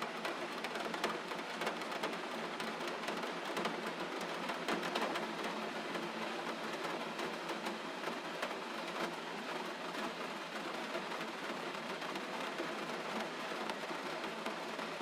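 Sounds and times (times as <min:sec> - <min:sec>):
gentle rain falling: 0:00.0 - 0:15.0.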